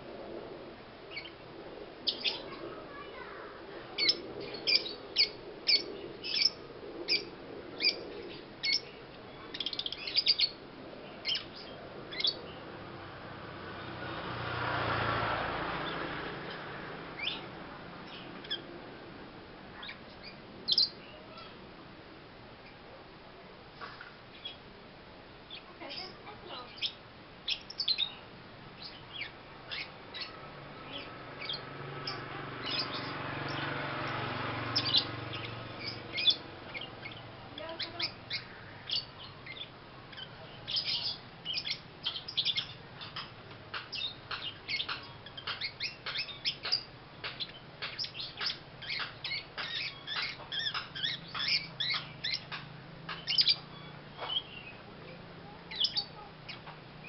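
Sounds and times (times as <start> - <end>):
lovebird chirping: 1.1 - 1.4, 2.0 - 2.6, 3.9 - 12.7, 19.8 - 21.5, 25.5 - 56.7.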